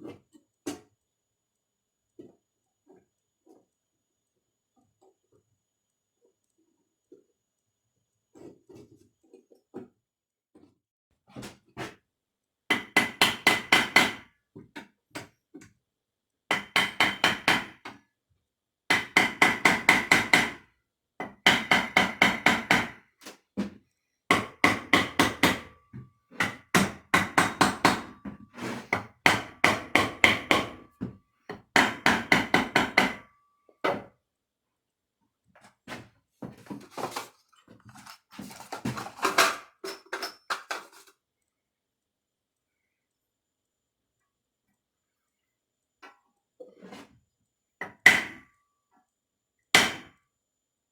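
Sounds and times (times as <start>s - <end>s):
hammer tapping on metal: 16.5s - 18.0s, 18.9s - 20.6s, 24.3s - 25.7s, 26.4s - 28.2s, 28.9s - 33.3s.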